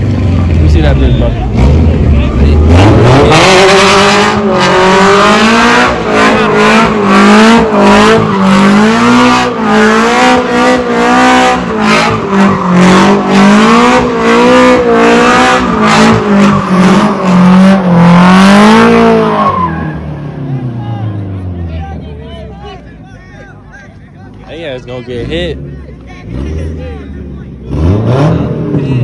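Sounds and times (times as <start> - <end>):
car engine revving: 0.0 - 21.6, 24.4 - 29.0.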